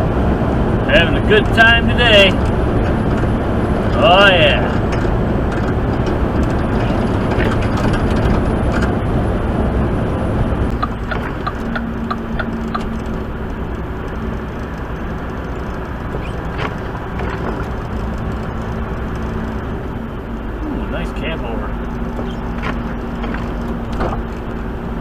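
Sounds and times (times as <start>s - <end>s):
truck engine and road noise: 0.0s - 25.0s.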